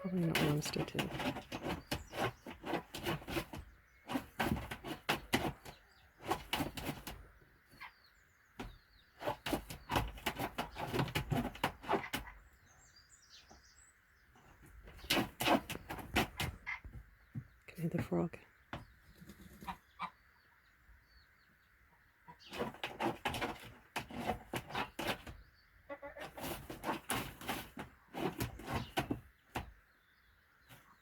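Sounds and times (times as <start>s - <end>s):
hen scratching in nest material: 0.0s - 7.9s, 8.6s - 12.5s, 14.4s - 17.0s, 19.0s - 20.1s, 22.3s - 29.8s.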